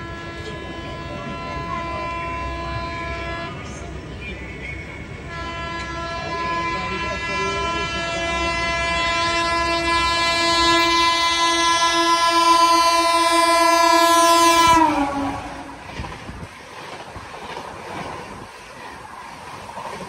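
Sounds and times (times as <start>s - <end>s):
locomotive horn: 0.0s - 4.0s, 5.2s - 16.0s
train coaches rumbling past: 0.0s - 20.0s.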